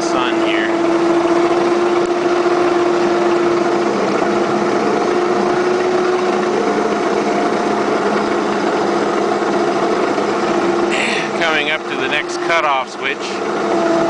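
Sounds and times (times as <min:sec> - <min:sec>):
model train motor whine: 0:00.0 - 0:14.0.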